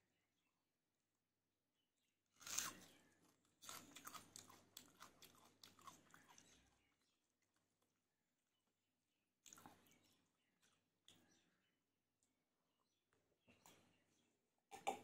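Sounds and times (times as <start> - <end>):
person chewing crunchy food: 2.3 - 8.0.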